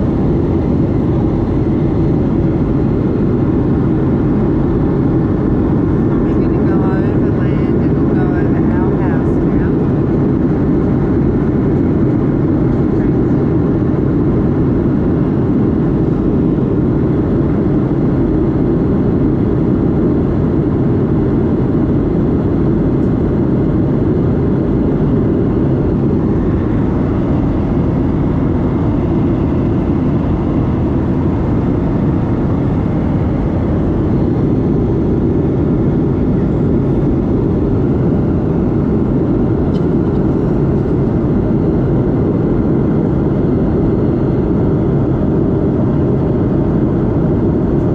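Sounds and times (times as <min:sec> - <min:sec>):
aircraft cabin engine rumble: 0:00.0 - 0:47.9.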